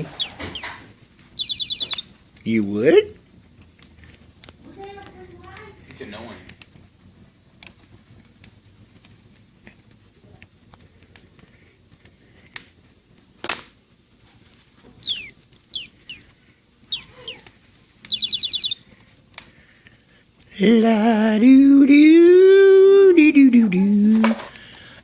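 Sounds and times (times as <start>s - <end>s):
bird chirping: 0.0s - 0.8s, 1.4s - 2.1s, 15.0s - 16.3s, 16.9s - 17.5s, 18.1s - 18.8s
fire crackling and popping: 0.0s - 25.0s.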